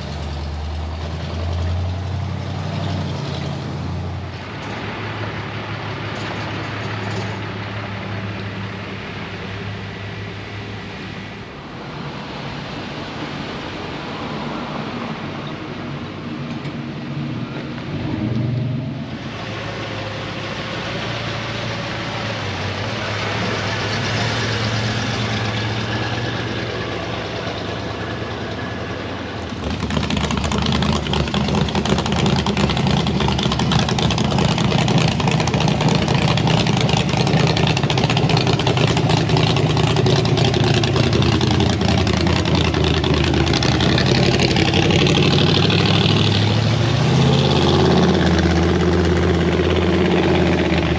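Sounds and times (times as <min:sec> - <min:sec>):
vehicle engine running: 0:17.4 - 0:50.9.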